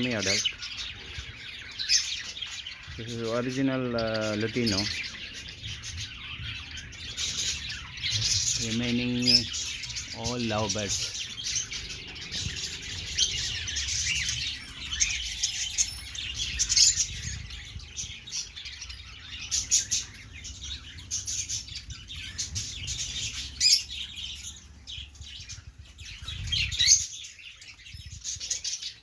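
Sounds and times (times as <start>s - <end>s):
lovebirds chattering: 0.0s - 29.0s.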